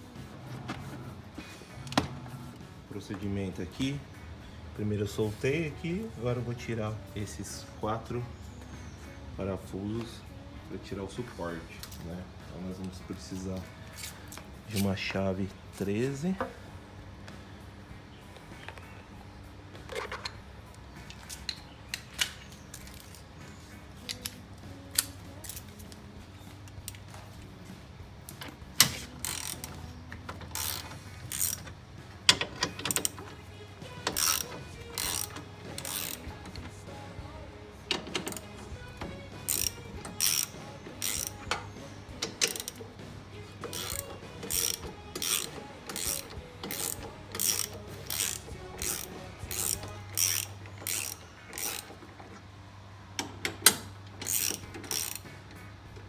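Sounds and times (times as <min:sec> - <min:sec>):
ratchet wrench clicking: 0:21.0 - 0:27.4, 0:28.2 - 0:52.0, 0:53.2 - 0:55.8.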